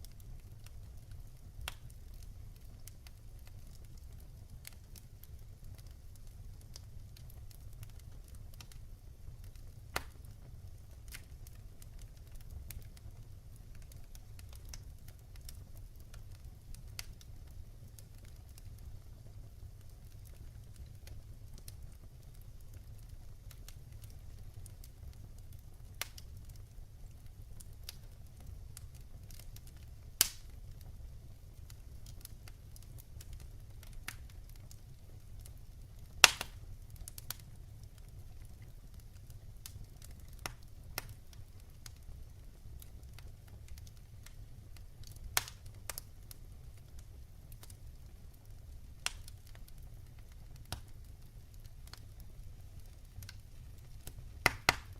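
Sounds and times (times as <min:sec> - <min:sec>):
fire crackling and popping: 0:00.0 - 0:54.9
low fire rumble: 0:00.0 - 0:54.9.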